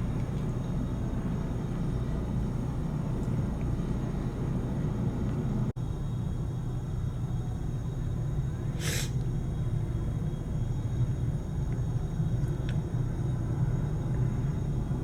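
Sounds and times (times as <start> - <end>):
jet engines rumbling: 0.0 - 5.8
short burst of hiss: 8.8 - 9.2.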